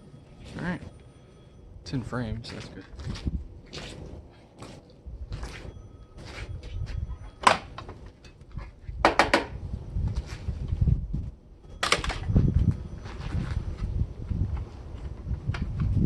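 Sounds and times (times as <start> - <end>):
low rumbling handling noise: 0.0 - 16.0
appliance parts clicking and knocking: 9.0 - 9.6.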